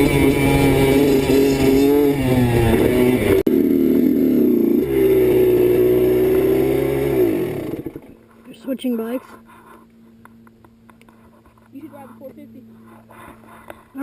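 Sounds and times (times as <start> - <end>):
dirt bike engine running: 0.0 - 8.2.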